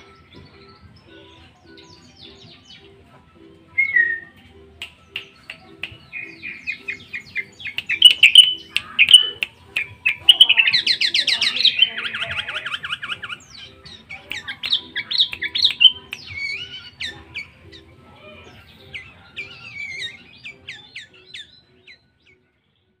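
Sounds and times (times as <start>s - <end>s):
bird chirping and whistling: 3.7s - 4.4s, 5.4s - 17.8s, 18.9s - 22.0s.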